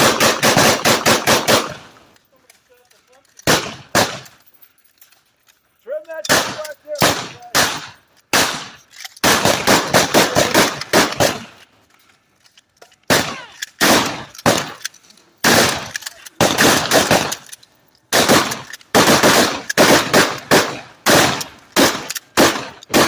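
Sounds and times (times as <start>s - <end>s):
shotgun fire: 0.0s - 1.9s, 3.4s - 4.3s, 6.3s - 11.6s, 13.1s - 14.8s, 15.4s - 17.4s, 18.1s - 23.0s.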